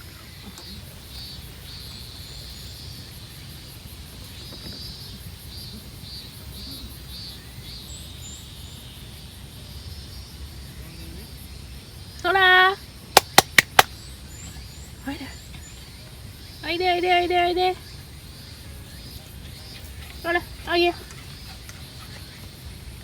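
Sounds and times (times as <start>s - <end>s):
faint high chirps: 0.0s - 9.5s
insects trilling: 0.0s - 23.0s.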